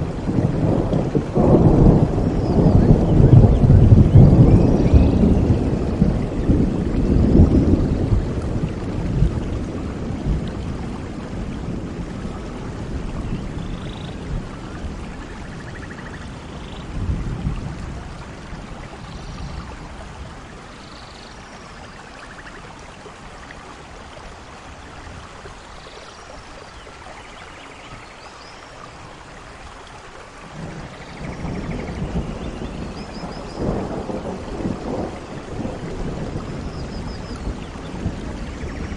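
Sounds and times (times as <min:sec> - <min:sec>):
thunder rolling: 0:00.0 - 0:12.2, 0:30.5 - 0:38.9
steady rain: 0:00.0 - 0:38.9.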